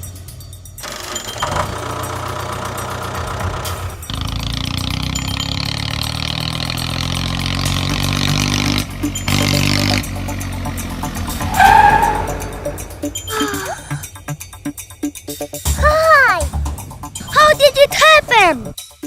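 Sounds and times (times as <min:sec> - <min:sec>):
tractor engine running: 0:00.0 - 0:18.8.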